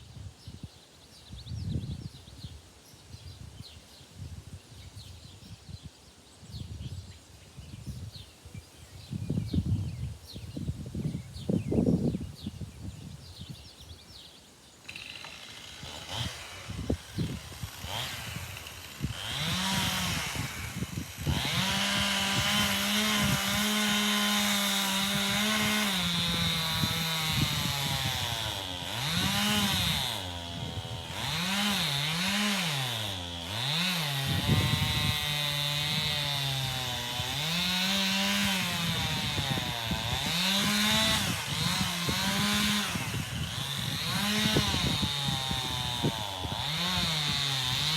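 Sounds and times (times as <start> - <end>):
chainsaw cutting wood: 14.8 - 47.9.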